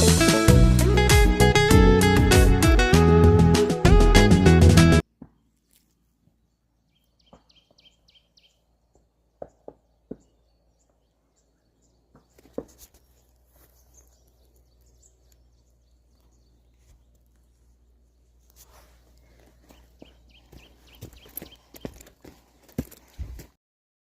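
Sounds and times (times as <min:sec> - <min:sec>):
rustling: 0:05.4 - 0:06.4, 0:12.3 - 0:23.5
small bird chirping: 0:06.4 - 0:09.0, 0:09.6 - 0:22.5.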